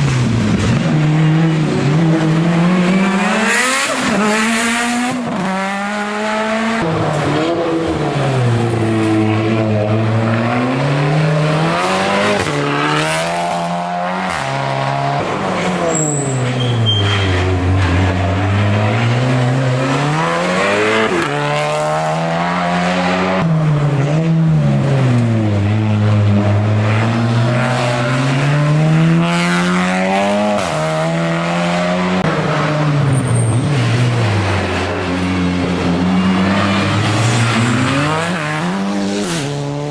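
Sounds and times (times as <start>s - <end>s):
race car engine revving: 0.0s - 39.9s
tyre squeal: 15.6s - 17.7s.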